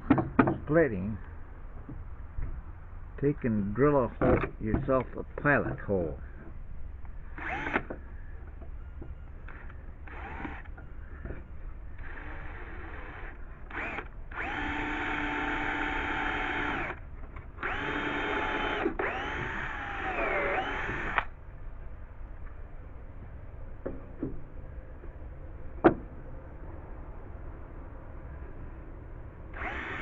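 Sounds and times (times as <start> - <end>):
power drill boring wood: 7.4 - 7.9, 10.0 - 10.7, 12.0 - 17.0, 17.6 - 21.3, 29.5 - 30.0.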